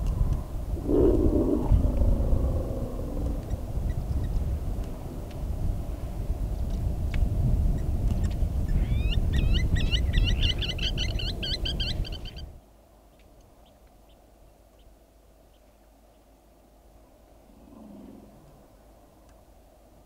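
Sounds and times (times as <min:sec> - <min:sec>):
loud low rumbling: 0:00.2 - 0:05.8
faint ticks: 0:01.8 - 0:03.6.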